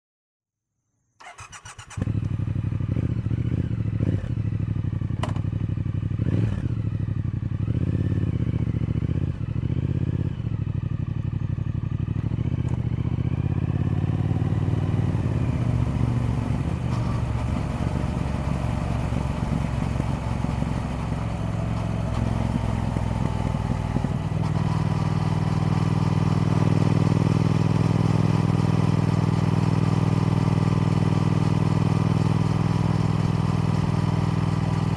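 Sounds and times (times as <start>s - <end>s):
motorcycle starter cranking: 1.2s - 2.0s
motorcycle engine idling: 1.3s - 34.9s.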